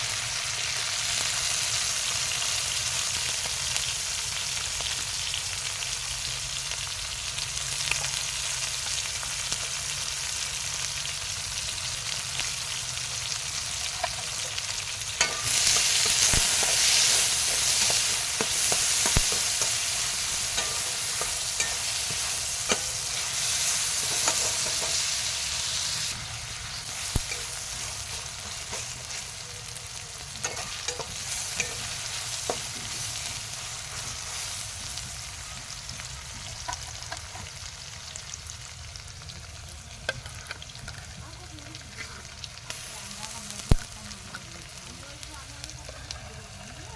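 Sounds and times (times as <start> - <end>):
curry sizzling in hot oil: 0.0 - 46.9.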